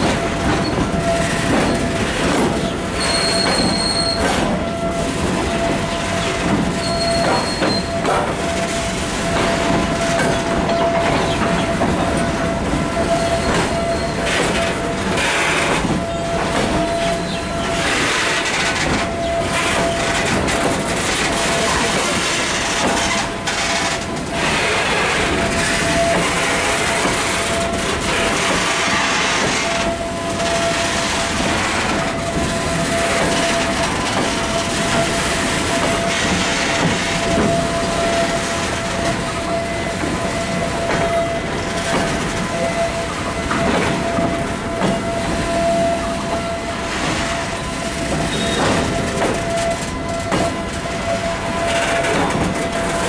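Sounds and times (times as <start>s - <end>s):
diesel locomotive rumbling: 0.0s - 53.0s
locomotive whine: 0.0s - 53.0s.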